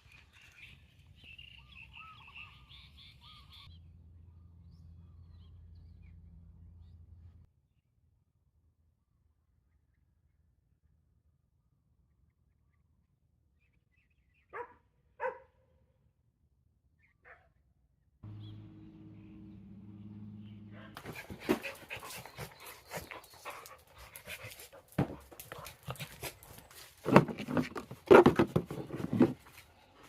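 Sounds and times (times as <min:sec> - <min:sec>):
dog barking: 0:14.5 - 0:15.7, 0:17.2 - 0:17.5, 0:20.7 - 0:23.7
clatter and knocks: 0:27.0 - 0:29.6.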